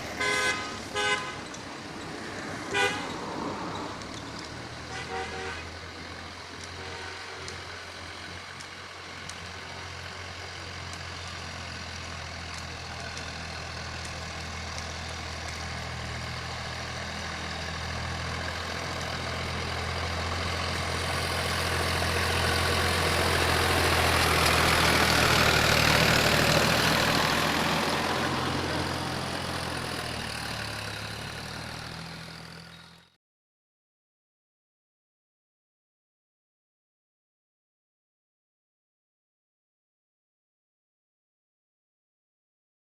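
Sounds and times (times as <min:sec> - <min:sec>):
tractor diesel engine running: 0:00.0 - 0:33.2.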